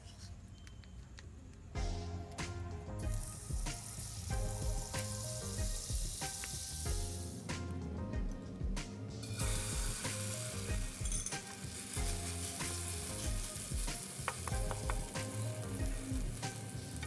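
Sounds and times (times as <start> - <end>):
background music: 1.8 - 17.0
food sizzling in hot oil: 3.0 - 7.5, 9.2 - 17.0.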